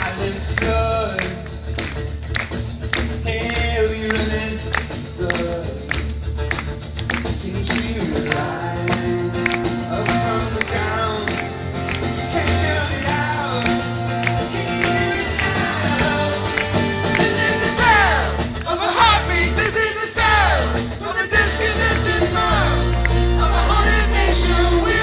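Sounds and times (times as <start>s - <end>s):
steady bass: 0.0s - 25.0s
strummed acoustic guitar: 0.0s - 25.0s
person singing: 7.4s - 25.0s.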